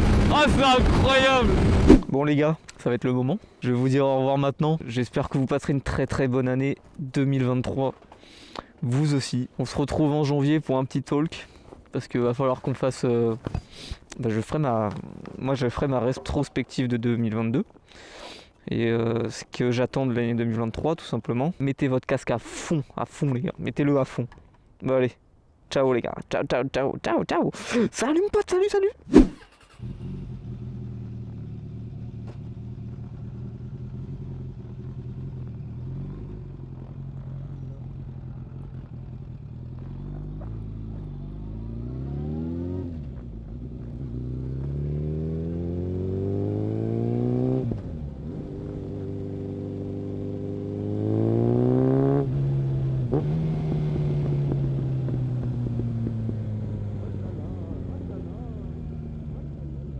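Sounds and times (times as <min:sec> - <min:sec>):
motorcycle engine revving: 0:00.0 - 0:02.1, 0:29.1 - 0:59.9.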